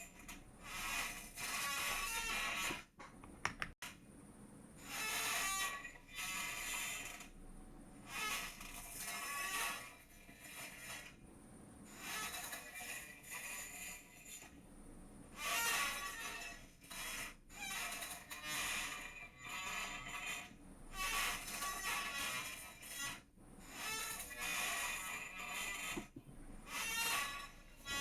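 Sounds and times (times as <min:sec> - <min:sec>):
chair creaking: 0:00.2 - 0:03.8, 0:15.6 - 0:28.0.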